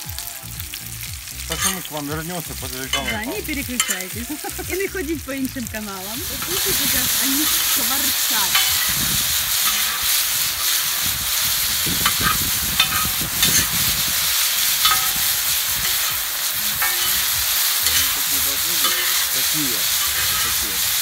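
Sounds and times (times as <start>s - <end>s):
dumplings sizzling in oil: 0.0s - 21.0s
metal ladle scraping a pan: 1.5s - 2.0s, 2.9s - 4.2s, 6.2s - 21.0s
ladle clinking against pan: 2.9s - 4.2s, 12.0s - 13.7s, 14.8s - 16.2s, 16.8s - 19.4s.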